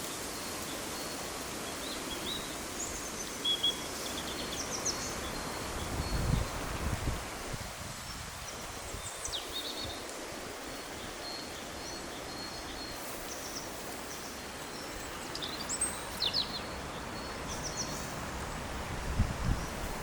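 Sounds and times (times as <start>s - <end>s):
small birds chirping: 0.0s - 7.0s, 8.1s - 18.8s
steady background hiss: 0.0s - 20.0s.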